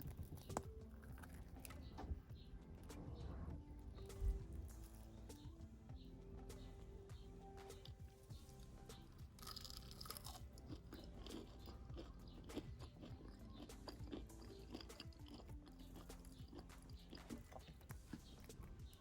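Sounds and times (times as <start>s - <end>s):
crunching and chewing food: 0.0s - 19.0s
quiet background music: 0.0s - 19.0s.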